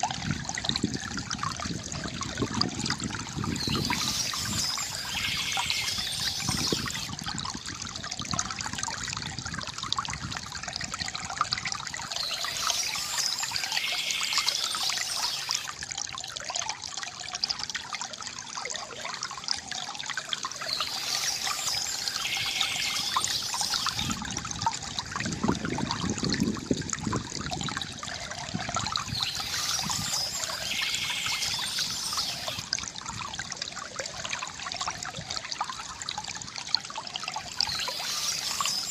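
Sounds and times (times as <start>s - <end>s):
river water gurgling: 0.0s - 38.9s.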